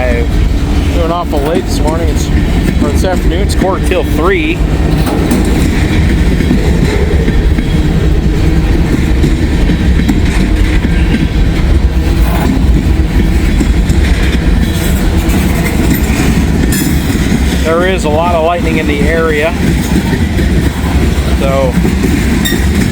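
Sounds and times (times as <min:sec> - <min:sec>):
freight train rolling past: 0:00.0 - 0:22.9
steel wheels rumbling on rails: 0:00.0 - 0:22.9.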